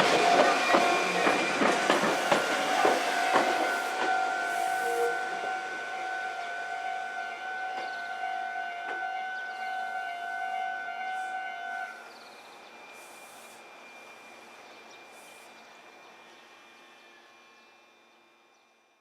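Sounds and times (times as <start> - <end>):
electric train whine: 0.0 - 19.0.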